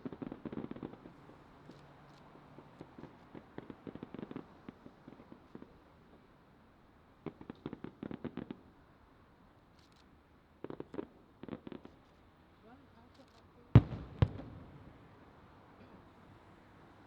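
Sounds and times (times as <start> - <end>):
fireworks crackling pops: 0.0 - 6.3, 7.2 - 8.8, 9.7 - 12.3, 13.0 - 15.2.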